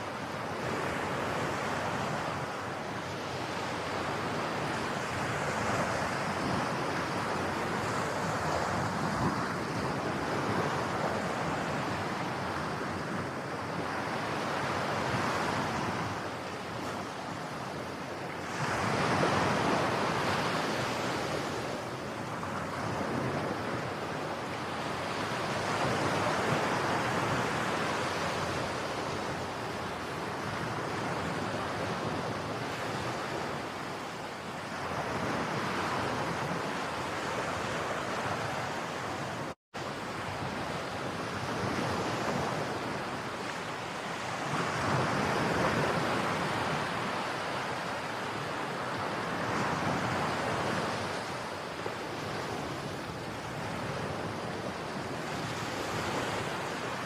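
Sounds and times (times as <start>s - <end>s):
ocean waves breaking on beach: 0.0s - 57.0s.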